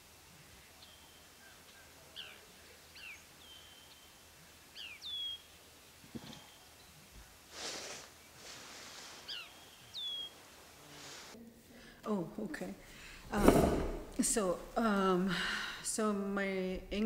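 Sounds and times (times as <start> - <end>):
small birds chirping and whistling: 0.8 - 5.6, 9.2 - 10.4
short hiss: 7.5 - 9.4, 10.9 - 11.4.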